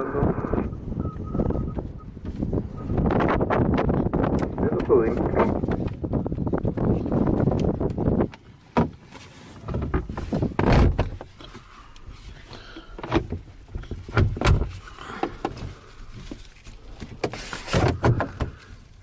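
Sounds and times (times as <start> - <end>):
rustling: 8.4 - 19.0
knocks and thumps: 8.7 - 9.0, 9.6 - 11.6, 13.0 - 16.4, 17.0 - 18.6.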